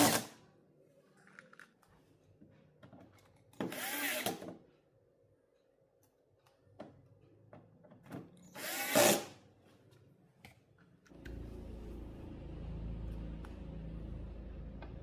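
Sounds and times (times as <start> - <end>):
steady low hum: 11.1 - 15.0.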